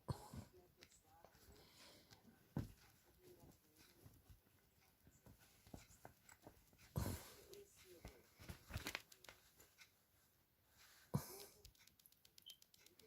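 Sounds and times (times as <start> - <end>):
kitten scuffling with puppet: 0.5 - 10.0
soft bumps: 2.5 - 7.3.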